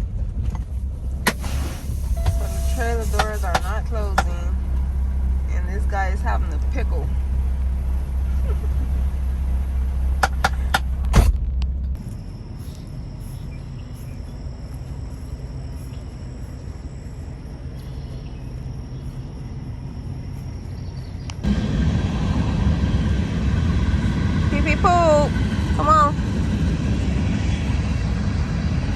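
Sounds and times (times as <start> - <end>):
truck idling: 0.0 - 28.9
faint high-pitched tone: 2.2 - 4.1.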